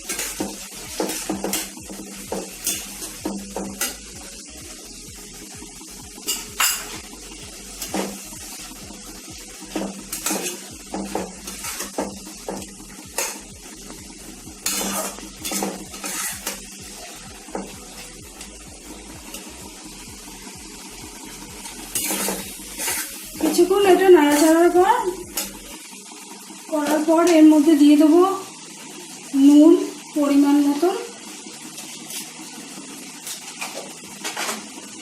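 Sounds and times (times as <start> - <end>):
utensil scraping a pan: 0.0 - 4.0, 9.7 - 13.4, 14.6 - 18.2, 21.6 - 25.7
faint sizzle: 0.0 - 35.0.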